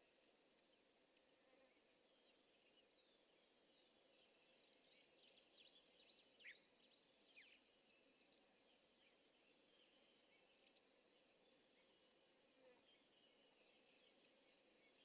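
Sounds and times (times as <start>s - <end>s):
faint background hiss: 0.0s - 15.0s.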